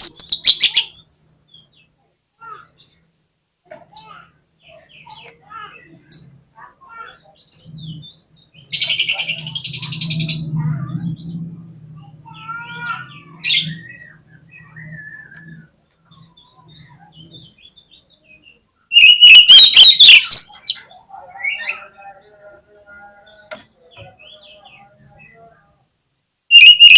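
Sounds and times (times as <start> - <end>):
songbird calling and singing: 0.0 - 25.8, 26.5 - 26.9
harsh rasping bird call: 18.9 - 22.0, 26.5 - 26.9
bird chattering burst: 19.0 - 20.7, 26.5 - 26.9.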